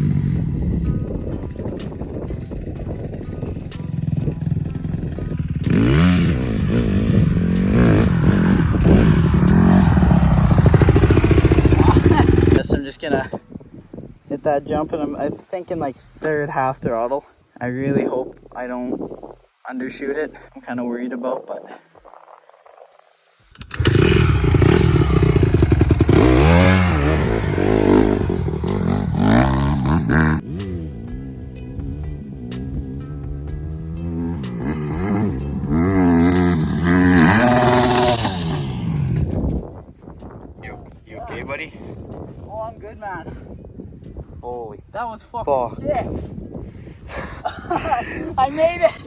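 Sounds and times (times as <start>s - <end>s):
dirt bike engine revving: 4.1s - 12.6s, 23.5s - 39.5s.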